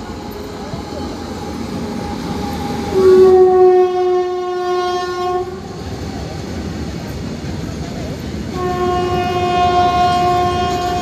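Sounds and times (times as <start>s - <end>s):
freight train rumbling past: 0.0s - 11.0s
locomotive horn blast: 1.9s - 5.8s, 8.5s - 11.0s.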